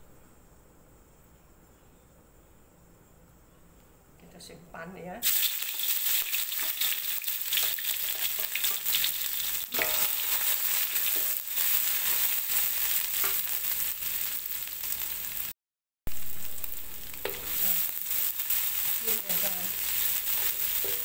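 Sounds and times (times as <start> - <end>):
food sizzling in hot oil: 5.2 - 21.0
wooden spatula scraping wok: 6.5 - 14.2, 17.1 - 21.0.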